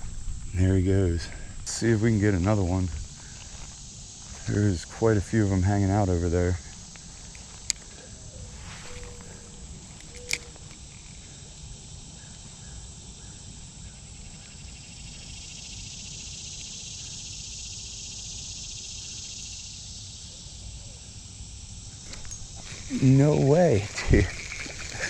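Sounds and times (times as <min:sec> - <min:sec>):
insects chirring: 0:00.0 - 0:25.0
sharp click: 0:10.0 - 0:11.0.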